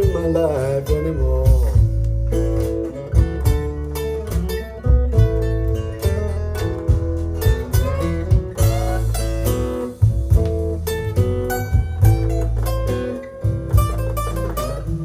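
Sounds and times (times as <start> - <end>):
person singing: 0.0 - 1.8
bass line: 0.0 - 15.0
blues guitar: 0.0 - 15.0
steady drum beat: 0.0 - 15.0.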